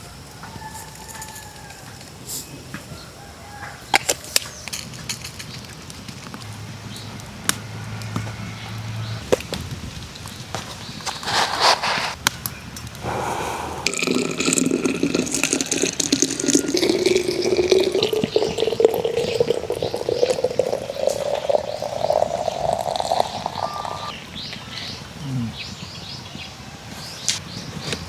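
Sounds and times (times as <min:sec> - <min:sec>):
water pouring into a container: 0:13.7 - 0:24.2.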